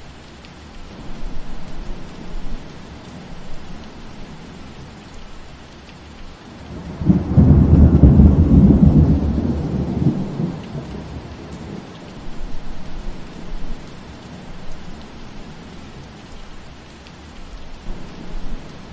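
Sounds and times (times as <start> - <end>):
steady rainfall: 0.0 - 18.9
thunder rumbling: 6.6 - 15.8.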